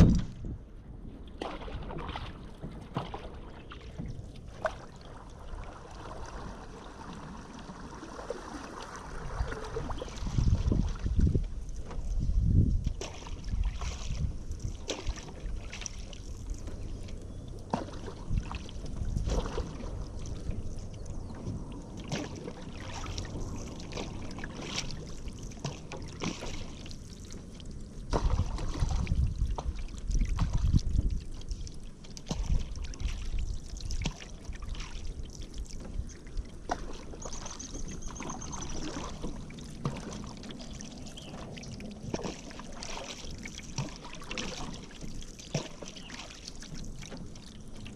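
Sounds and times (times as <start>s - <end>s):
knocks against boat: 0.0s - 0.6s
heavy low thumps: 0.0s - 0.7s
paddle splashing in water: 0.0s - 47.9s.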